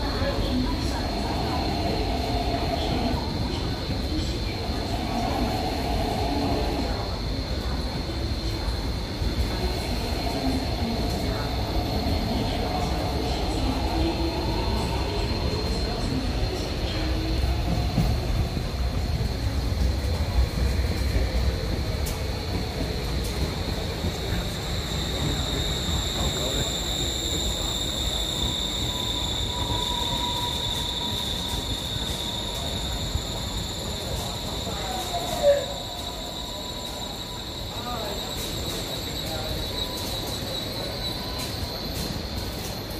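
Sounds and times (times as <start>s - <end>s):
train wheels rumbling: 0.0s - 42.9s
faint squeal: 23.6s - 42.8s.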